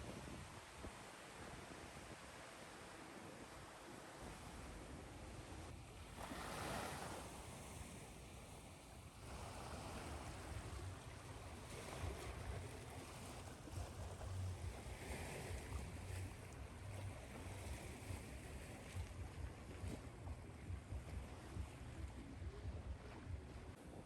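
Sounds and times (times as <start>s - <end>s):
ocean waves washing in: 1.0s - 24.0s
low steady rumble: 9.0s - 24.0s.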